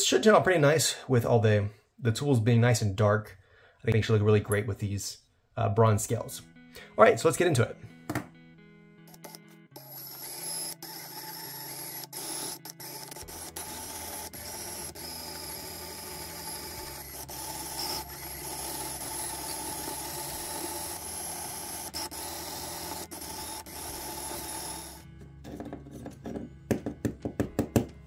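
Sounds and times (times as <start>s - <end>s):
drill bit grinding metal pin: 9.1s - 25.0s
drill press whining: 9.1s - 25.0s.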